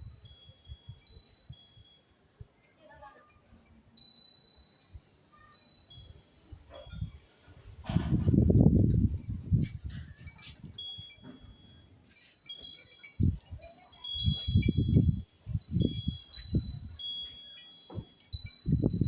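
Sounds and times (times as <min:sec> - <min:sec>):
wind chime ringing: 0:00.0 - 0:07.6, 0:08.4 - 0:19.0
wind buffeting microphone: 0:06.0 - 0:11.6, 0:13.0 - 0:17.1, 0:17.8 - 0:19.0.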